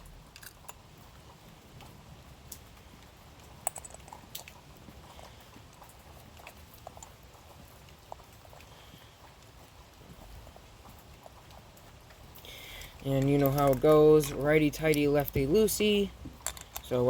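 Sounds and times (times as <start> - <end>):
metal parts clicking and tapping: 0.3 - 0.8, 3.6 - 4.5, 13.0 - 15.8, 16.4 - 17.0.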